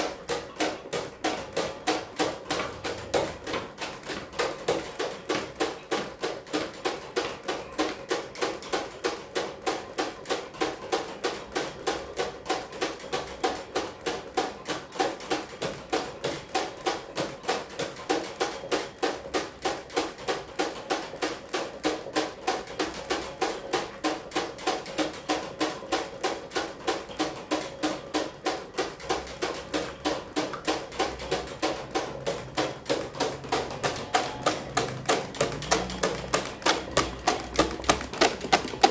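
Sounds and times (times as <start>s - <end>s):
rhythmic knocking: 0.0s - 38.9s
electric fan humming: 31.5s - 38.9s.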